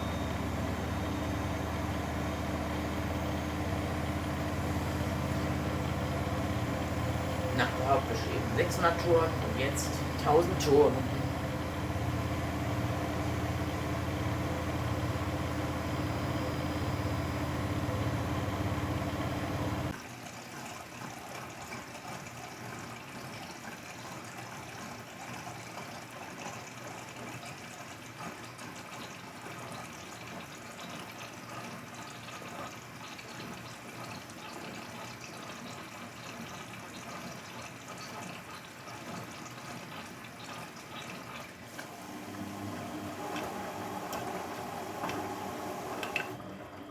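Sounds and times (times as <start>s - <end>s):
washing machine spinning: 0.0s - 46.9s
rushing water noise: 4.5s - 14.5s.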